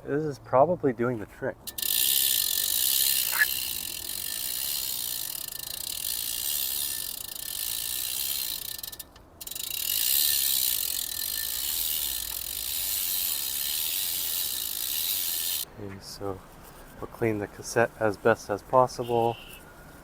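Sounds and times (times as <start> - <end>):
bicycle freehub ratcheting: 1.6 - 15.7.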